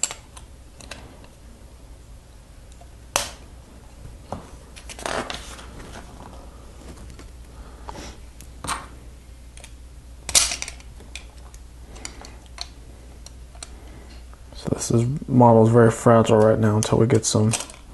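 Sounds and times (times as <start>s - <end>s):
plastic pieces clicking: 17.5s - 17.9s.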